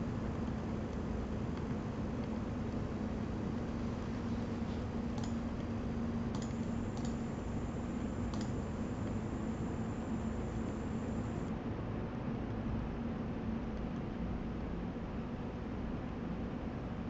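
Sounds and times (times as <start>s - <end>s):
high-pitched coil whine: 6.4s - 11.5s.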